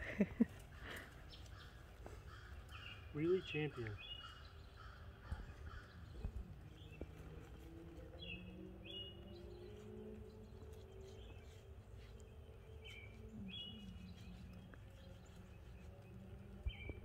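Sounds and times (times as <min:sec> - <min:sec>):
bird chirping: 0:00.2 - 0:17.0.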